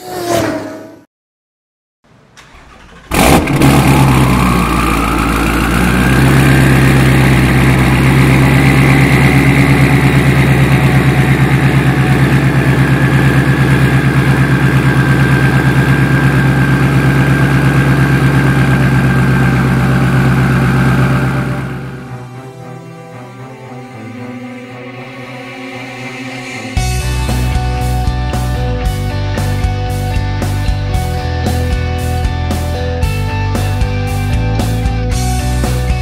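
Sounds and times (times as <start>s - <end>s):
faint engine whine: 2.2s - 28.0s
car engine idling: 2.4s - 22.5s.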